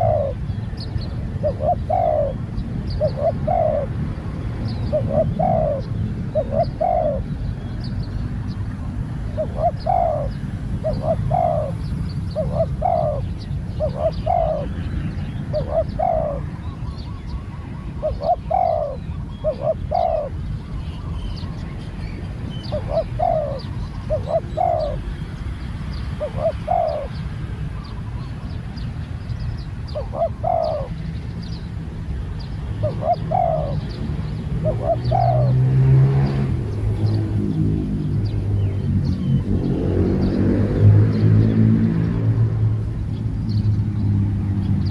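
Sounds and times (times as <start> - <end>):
dove cooing: 0.0 - 7.4, 8.8 - 21.6, 22.5 - 25.1, 26.1 - 28.0, 29.9 - 31.1, 32.8 - 36.5.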